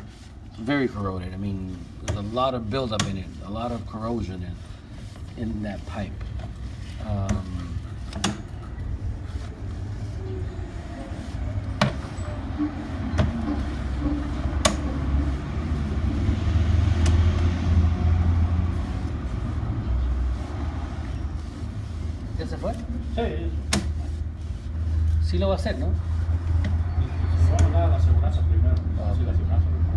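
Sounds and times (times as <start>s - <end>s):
vehicle engine rumble: 0.0s - 29.9s
sharp clicks and knocks: 14.5s - 14.9s, 16.9s - 17.5s.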